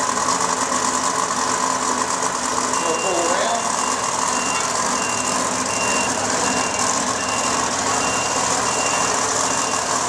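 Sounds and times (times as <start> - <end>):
engine noise: 0.0 - 10.0
vehicle backup alarm beeping: 2.7 - 10.0.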